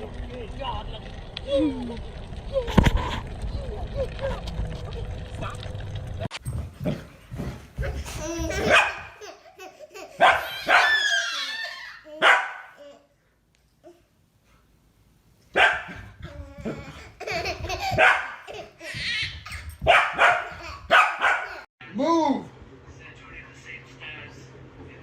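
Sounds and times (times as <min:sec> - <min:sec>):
dog barking: 0:08.6 - 0:09.2, 0:10.2 - 0:11.1, 0:12.2 - 0:12.8, 0:15.5 - 0:16.0, 0:18.0 - 0:18.4, 0:19.8 - 0:21.7.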